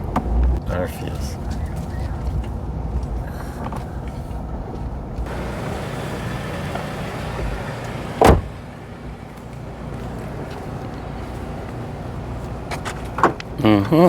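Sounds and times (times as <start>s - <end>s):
car low rumble: 0.0s - 14.0s
car door slamming: 5.3s - 8.8s, 12.7s - 13.4s.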